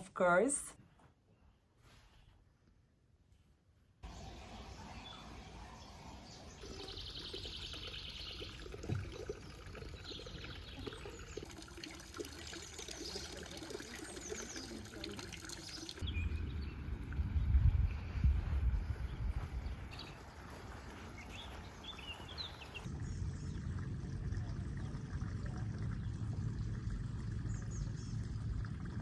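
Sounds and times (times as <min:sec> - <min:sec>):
birds singing: 0:04.0 - 0:11.6, 0:12.6 - 0:17.5, 0:18.8 - 0:23.9, 0:25.9 - 0:28.9
water trickling: 0:06.3 - 0:17.7, 0:19.7 - 0:29.0
wind buffeting microphone: 0:16.0 - 0:20.6, 0:21.3 - 0:29.0.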